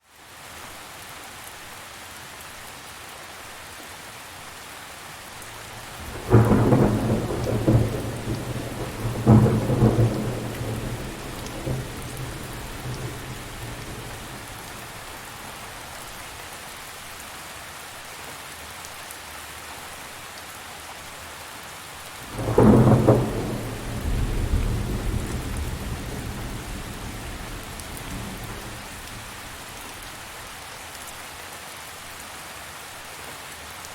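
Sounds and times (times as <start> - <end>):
steady rain falling: 0.0 - 33.9
thunder rumbling: 5.7 - 16.2, 22.2 - 30.4.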